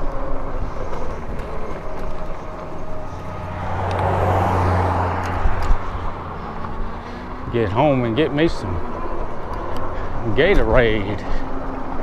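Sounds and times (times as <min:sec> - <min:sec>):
road noise from e-bike: 0:00.0 - 0:12.0
vehicle passing with tyre hiss: 0:00.5 - 0:10.2
wind noise: 0:03.1 - 0:07.4.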